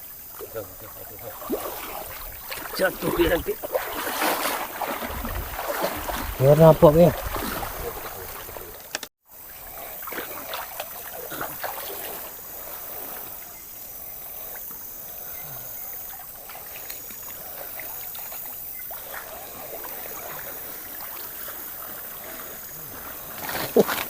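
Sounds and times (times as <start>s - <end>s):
river water flowing: 0.0s - 24.0s
light splashes and knocks: 0.4s - 9.1s.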